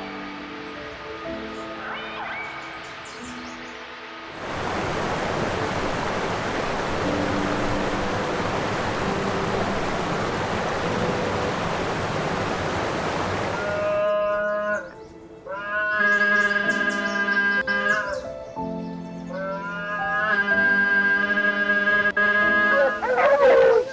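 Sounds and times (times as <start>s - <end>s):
soft background music: 0.0s - 23.9s
steady rushing noise: 4.3s - 14.0s
drawn-out animal calls: 19.6s - 23.9s.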